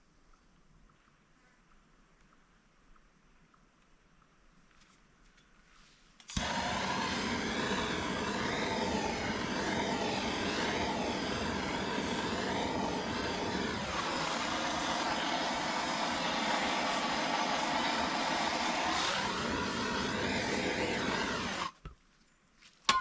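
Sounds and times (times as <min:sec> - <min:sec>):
engine running: 0:06.3 - 0:21.7.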